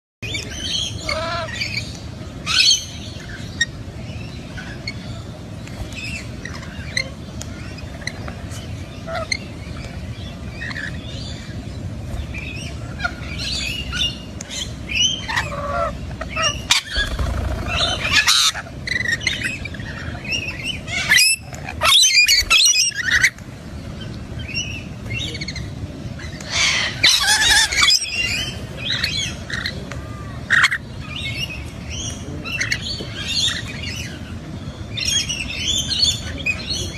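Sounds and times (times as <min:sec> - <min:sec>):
parrots calling: 0:00.6 - 0:03.7, 0:14.9 - 0:23.4, 0:26.2 - 0:29.8.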